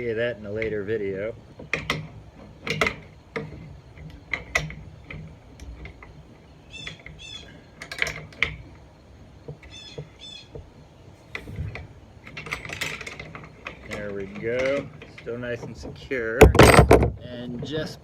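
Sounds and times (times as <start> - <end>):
bird chirps: 6.4 - 7.8, 9.7 - 10.6.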